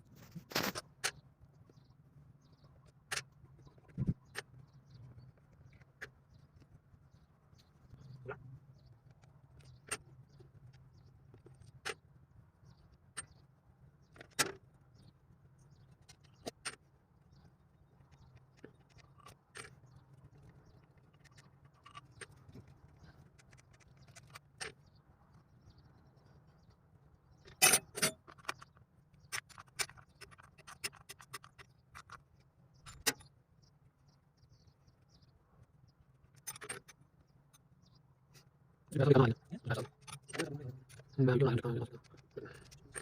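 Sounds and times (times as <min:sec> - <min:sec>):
metal tools clinking: 0:27.5 - 0:28.6.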